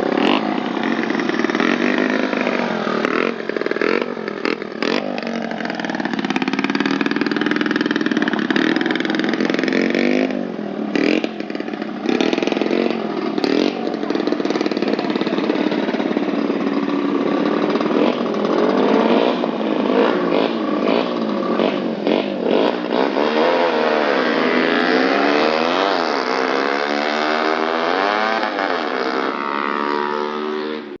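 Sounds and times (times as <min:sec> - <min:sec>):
motorcycle engines revving: 0:00.0 - 0:31.0.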